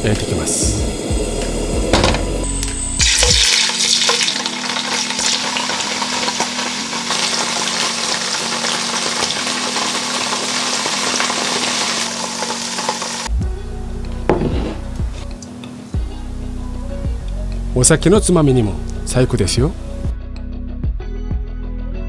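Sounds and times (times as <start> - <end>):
tofu sizzling in a frying pan: 3.0 - 13.3.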